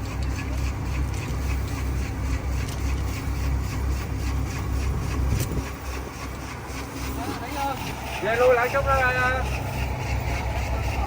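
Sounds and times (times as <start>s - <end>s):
farm machine engine idling: 0.0s - 11.0s.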